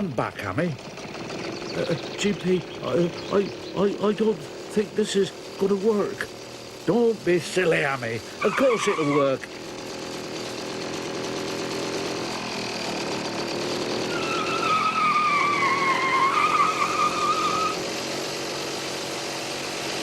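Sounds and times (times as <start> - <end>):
car engine labouring: 0.0 - 20.0
high squealing whine: 1.5 - 9.5, 14.0 - 17.8.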